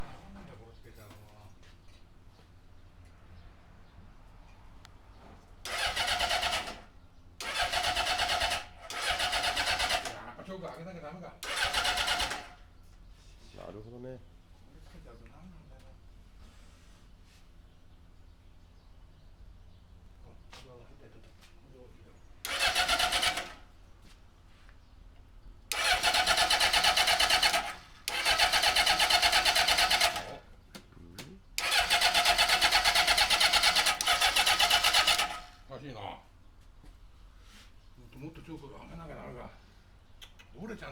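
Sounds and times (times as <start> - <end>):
electric starter cranking engine: 5.6 - 10.4, 11.4 - 12.6, 22.4 - 23.7, 25.7 - 30.5, 31.6 - 35.7.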